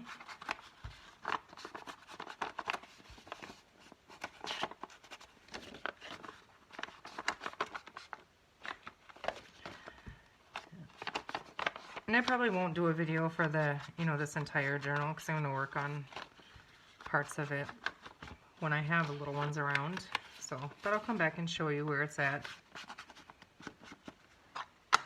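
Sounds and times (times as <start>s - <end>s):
paper rustling: 0.0s - 25.0s.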